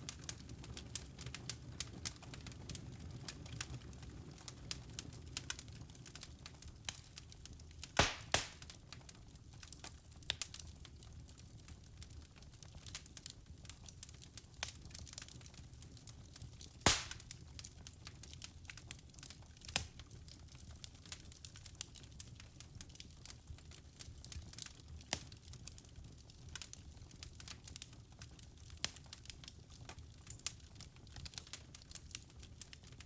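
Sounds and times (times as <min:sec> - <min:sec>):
wood fire crackling: 0:00.0 - 0:33.0
fire pops: 0:07.8 - 0:08.9, 0:16.6 - 0:17.7.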